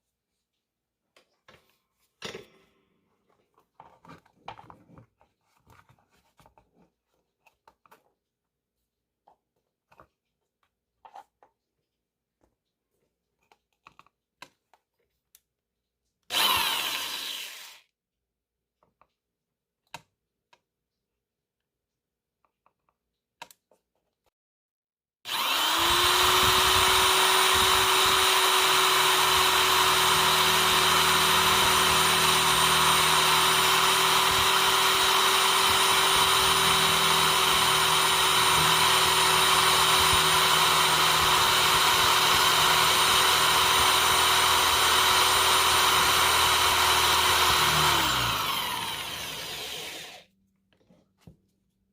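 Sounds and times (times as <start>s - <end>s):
electric power tool motor: 16.3s - 17.9s, 25.3s - 50.3s.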